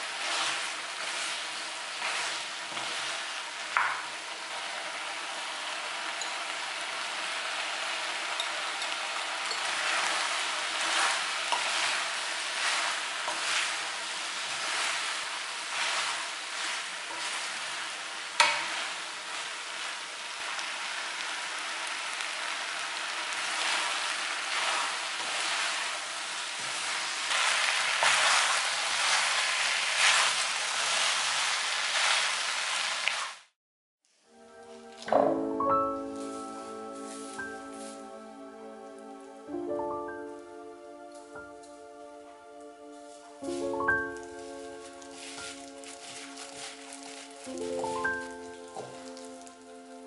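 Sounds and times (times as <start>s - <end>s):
stirring scraping strokes: 0.0s - 3.4s, 9.5s - 19.5s, 23.5s - 33.2s, 43.0s - 49.6s
food sizzling in a wok: 0.0s - 33.6s, 36.0s - 38.7s, 43.1s - 50.0s.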